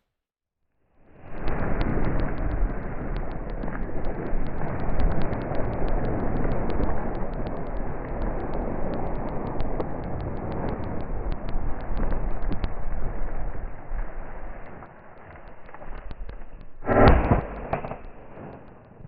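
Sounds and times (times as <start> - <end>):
wind buffeting microphone: 1.2 - 14.8
faint high ticks: 1.2 - 19.0.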